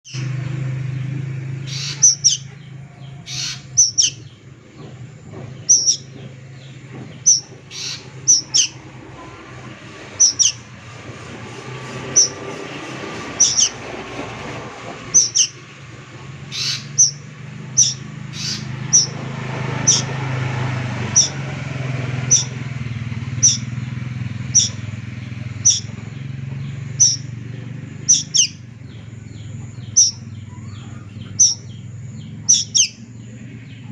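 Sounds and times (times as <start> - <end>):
cuckoo calling: 1.6 - 4.4, 5.5 - 9.5, 10.1 - 10.8, 13.3 - 13.8, 15.1 - 15.6, 16.5 - 19.2, 21.1 - 21.5, 22.2 - 27.4, 28.0 - 33.9.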